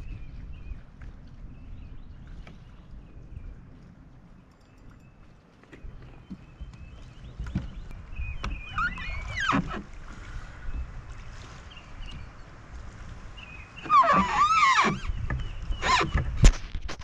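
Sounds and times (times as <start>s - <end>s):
choppy water: 0.0s - 17.0s
wind rumbling on microphone: 0.0s - 17.0s
knocks against kayak hull: 7.4s - 7.8s.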